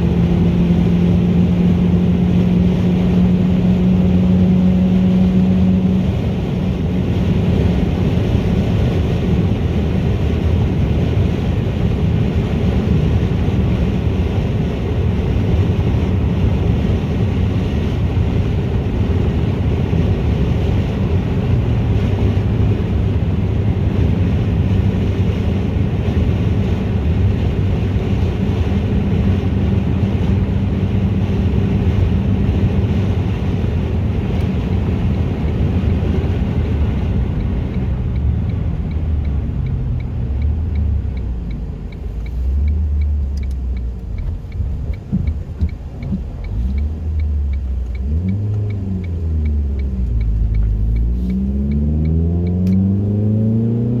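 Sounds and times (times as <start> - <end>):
car engine revving: 0.0 - 54.0
faint regular ticking: 35.8 - 52.8.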